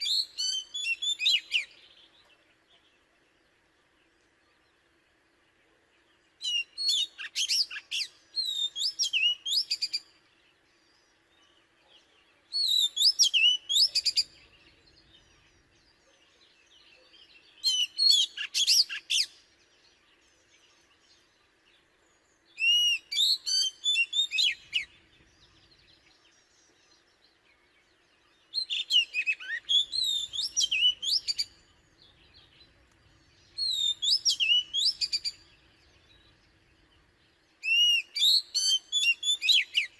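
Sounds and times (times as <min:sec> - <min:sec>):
bird singing whistled notes: 0:00.0 - 0:02.8, 0:06.1 - 0:39.9.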